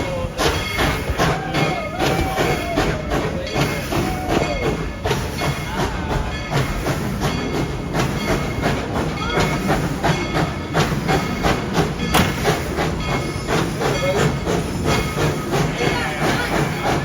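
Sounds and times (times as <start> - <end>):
hiss of steam: 0.0 - 17.0
train cars rattling on rails: 0.0 - 17.0.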